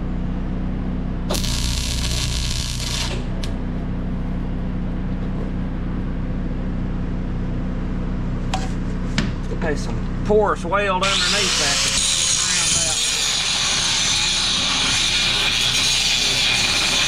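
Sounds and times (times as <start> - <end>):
engine humming: 0.0 - 11.7
welding arc crackling and hissing: 1.3 - 3.5, 11.0 - 17.0.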